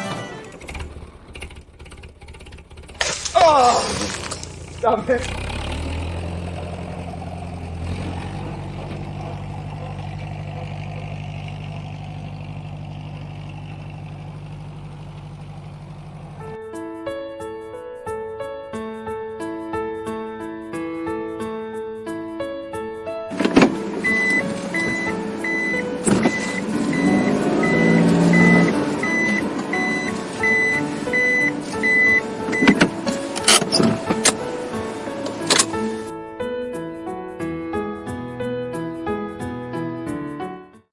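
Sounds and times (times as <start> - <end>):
vehicle engine humming: 0.0 - 16.6, 23.3 - 36.1
tune of lower notes: 23.4 - 33.0
reversing alarm beeping: 23.4 - 33.9.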